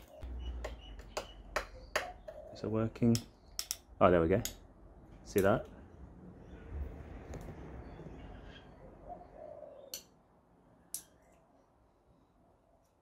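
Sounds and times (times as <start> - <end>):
faint bird calls: 7.8 - 10.1.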